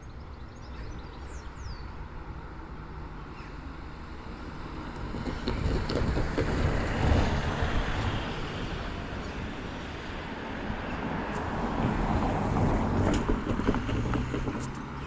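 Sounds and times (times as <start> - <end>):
wind buffeting microphone: 4.4 - 15.0.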